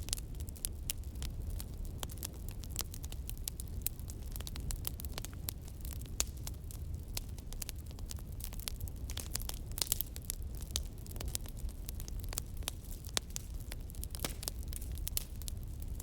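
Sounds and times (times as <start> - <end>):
low fire rumble: 0.0 - 16.0
wood fire crackling and popping: 0.0 - 16.0.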